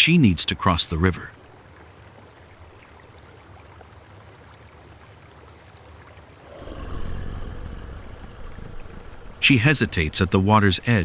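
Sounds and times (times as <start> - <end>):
river water rushing: 6.4 - 11.0
deep low rumble: 6.5 - 10.2.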